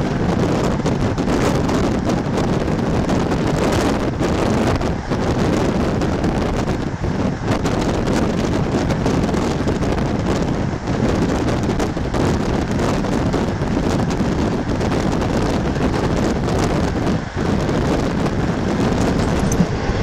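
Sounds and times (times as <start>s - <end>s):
moving train rumbling: 0.0s - 20.0s
wind buffeting microphone: 0.0s - 20.0s.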